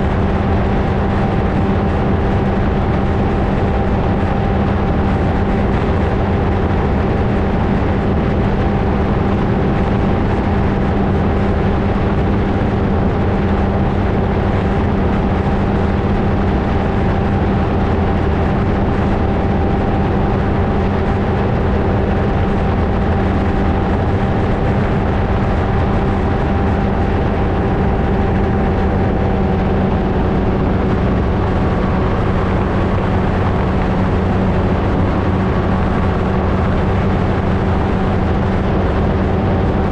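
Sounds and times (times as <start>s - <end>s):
ultralight engine and propeller: 0.0s - 39.9s.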